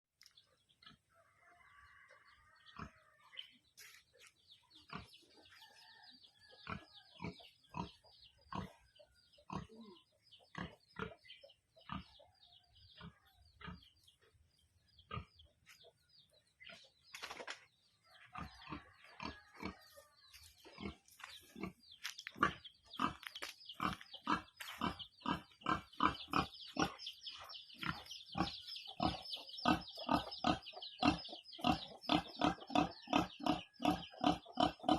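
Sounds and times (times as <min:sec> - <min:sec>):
chicks peeping: 0:00.4 - 0:14.2, 0:17.8 - 0:34.9
hen clucking: 0:00.6 - 0:17.4, 0:18.0 - 0:34.9.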